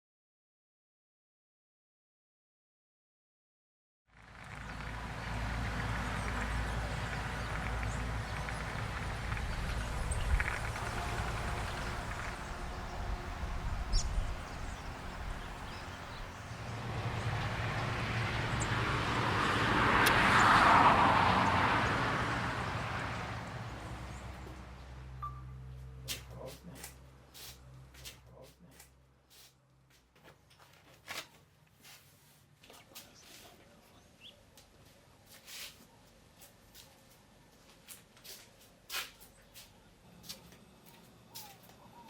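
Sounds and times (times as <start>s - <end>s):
motor vehicle passing: 4.1s - 28.8s
steady low rumble: 4.4s - 18.9s.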